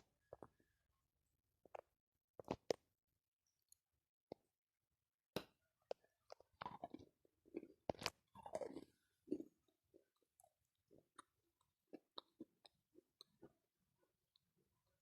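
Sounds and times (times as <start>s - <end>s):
moist chewing: 5.8s - 14.5s.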